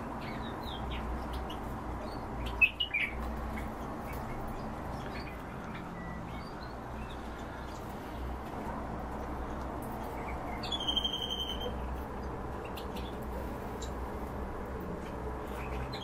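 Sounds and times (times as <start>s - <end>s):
background noise: 0.0s - 16.0s
cage birds chirping: 0.0s - 16.0s
bird trill: 10.5s - 11.9s.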